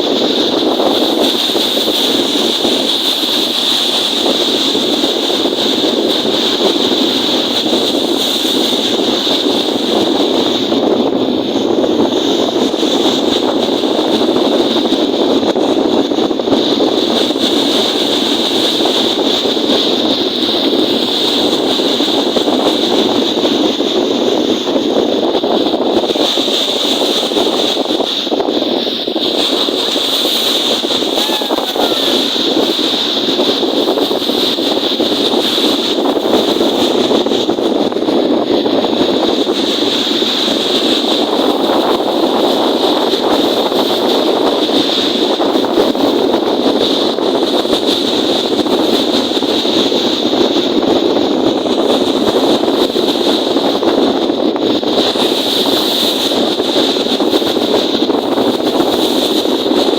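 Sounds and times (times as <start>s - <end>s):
wind: 0.0s - 59.9s
lake waves: 26.1s - 44.0s.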